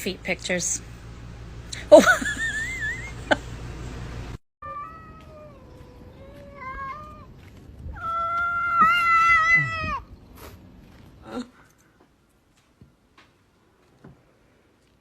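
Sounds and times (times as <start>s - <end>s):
cat yowling: 4.6s - 7.3s, 7.9s - 10.1s.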